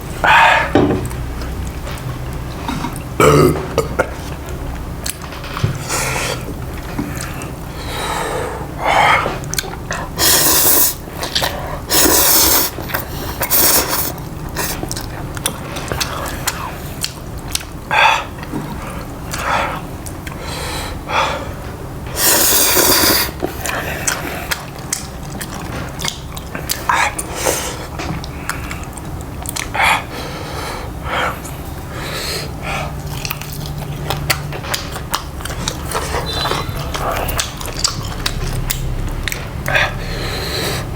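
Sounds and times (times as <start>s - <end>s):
breathing: 20.4s - 21.6s, 39.8s - 40.9s
biting and chewing: 23.2s - 30.1s, 32.5s - 40.9s.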